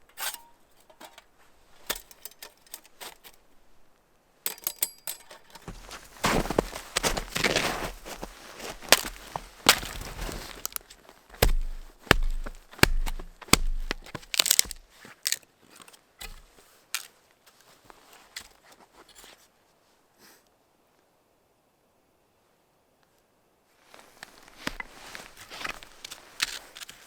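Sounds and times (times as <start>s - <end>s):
sharp cracks and crunches: 5.4s - 16.4s, 24.5s - 27.0s.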